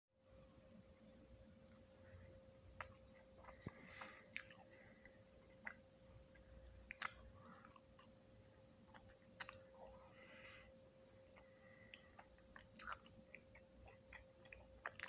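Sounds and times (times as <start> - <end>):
faint steady hum: 0.2 - 15.0
crunchy cookie chewing: 1.1 - 10.6, 11.2 - 15.0
mouth clicks: 6.9 - 7.8.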